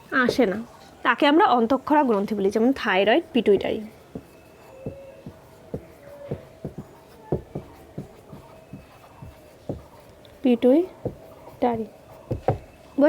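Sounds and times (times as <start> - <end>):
writing taps on a board: 0.2 - 0.6, 3.5 - 12.9.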